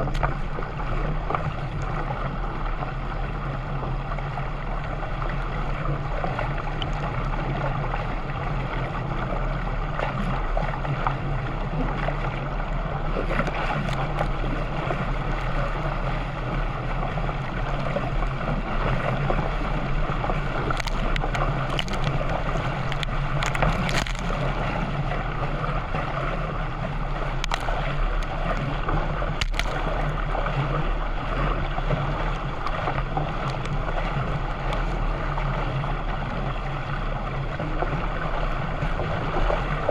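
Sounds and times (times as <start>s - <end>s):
water rushing around a canoe: 0.0s - 39.9s
sharp splashes or knocks: 20.5s - 24.8s, 27.4s - 30.2s.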